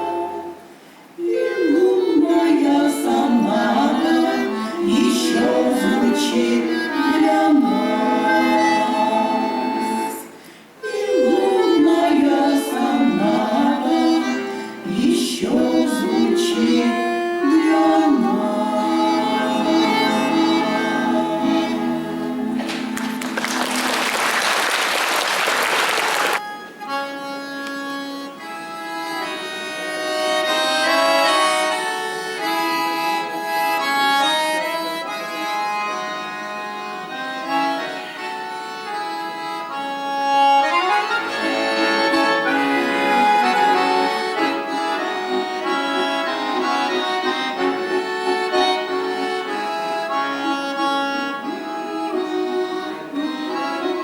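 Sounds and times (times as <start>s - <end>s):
accordion playing a melody: 0.0s - 54.0s
applause: 22.7s - 26.4s.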